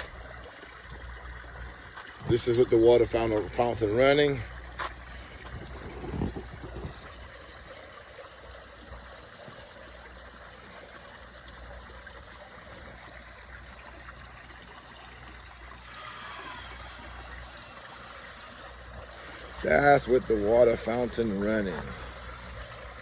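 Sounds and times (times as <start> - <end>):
fountain water splashing: 0.0 - 23.0.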